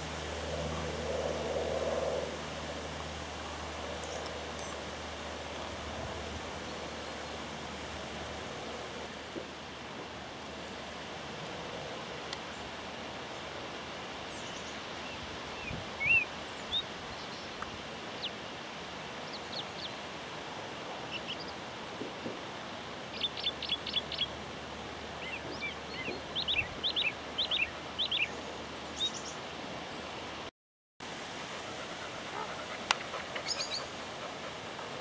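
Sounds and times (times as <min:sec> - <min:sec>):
steady background hiss: 0:00.0 - 0:35.0
birds chirping: 0:25.2 - 0:29.4, 0:32.1 - 0:35.0.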